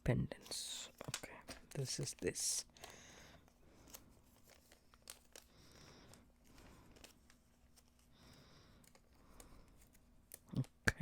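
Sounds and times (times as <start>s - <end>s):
plastic packet crinkling: 0.4s - 8.0s.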